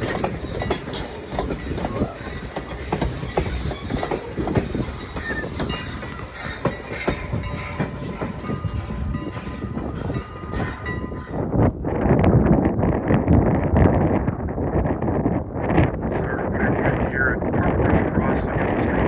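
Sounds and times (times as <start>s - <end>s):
train wheels clacking on rails: 0.0s - 12.4s
train rumble: 0.0s - 19.0s.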